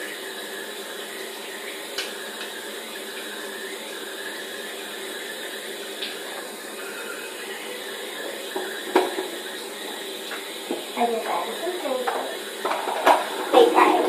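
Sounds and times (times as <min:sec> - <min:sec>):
tap water running into sink: 0:08.2 - 0:14.0.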